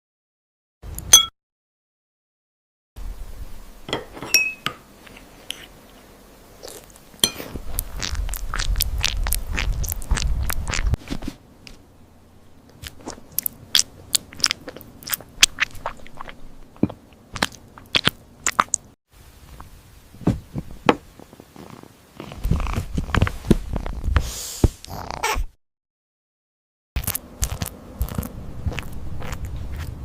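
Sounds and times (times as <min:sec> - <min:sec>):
crunchy chewing and biting: 0:06.6 - 0:11.0, 0:12.8 - 0:18.9, 0:27.0 - 0:30.0.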